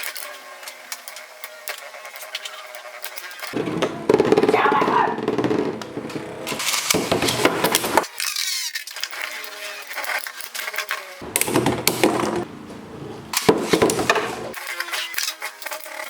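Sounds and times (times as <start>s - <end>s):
spinning tops whirring: 0.0s - 12.5s.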